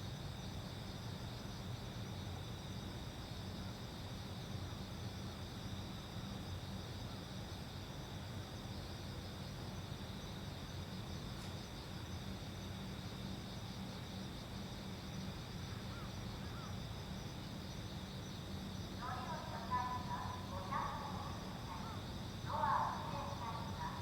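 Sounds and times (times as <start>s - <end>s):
insects trilling: 9.4s - 24.0s
low steady hum: 17.3s - 24.0s.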